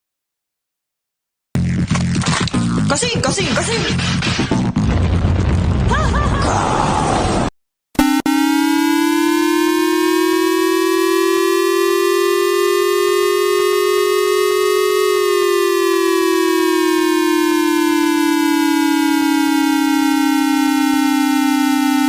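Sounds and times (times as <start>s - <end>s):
electronic siren wailing: 8.0s - 22.0s.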